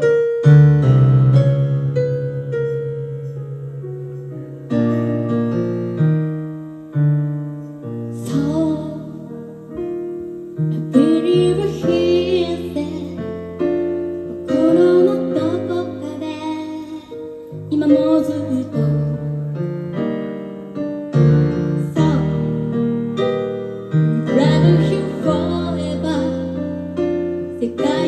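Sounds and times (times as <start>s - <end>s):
electric piano playing slow song: 0.0s - 28.0s.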